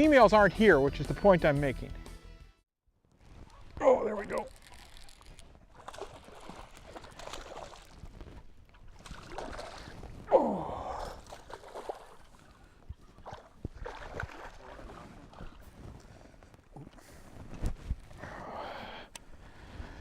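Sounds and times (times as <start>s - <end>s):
water splashing around boat: 3.4s - 16.8s.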